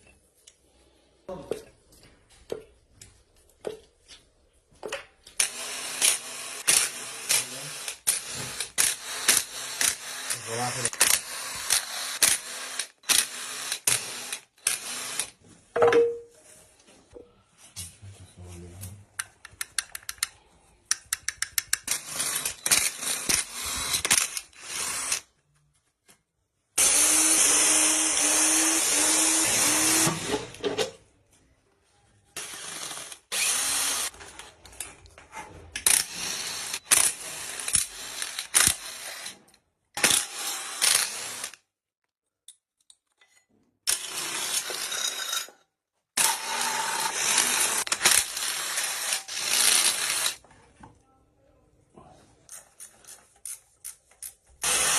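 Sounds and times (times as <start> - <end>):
power tool running: 5.4 - 15.4, 26.8 - 30.6, 32.4 - 34.2.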